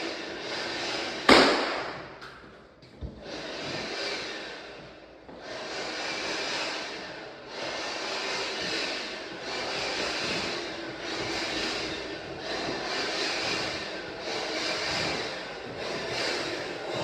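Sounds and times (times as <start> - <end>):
sharp knock: 1.3 - 2.1.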